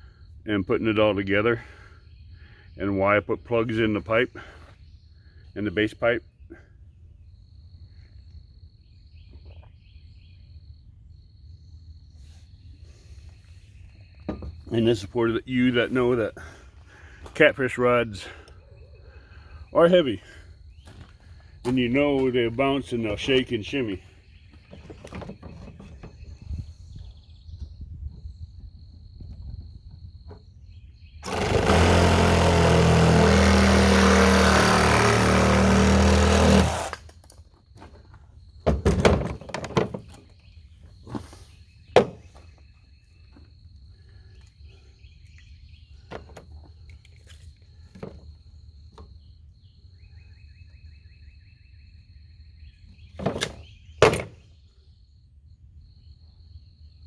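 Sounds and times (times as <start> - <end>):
electric power tool running: 31.2 - 37.1.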